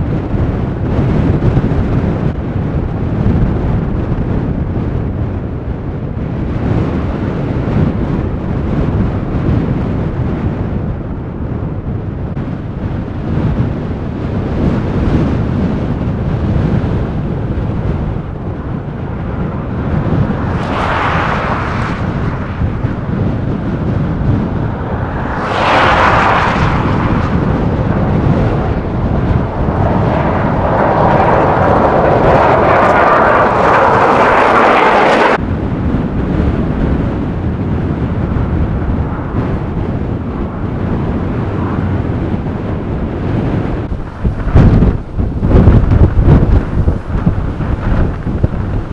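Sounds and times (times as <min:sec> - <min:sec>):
hissing wind gusts: 0:00.0 - 0:48.9
wind buffeting microphone: 0:00.0 - 0:48.9.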